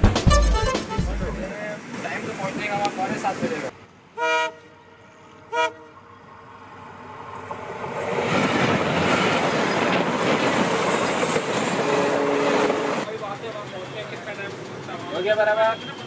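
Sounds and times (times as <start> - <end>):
passenger train passing: 1.4 - 16.0
train horn blast: 4.2 - 6.0, 11.8 - 13.0.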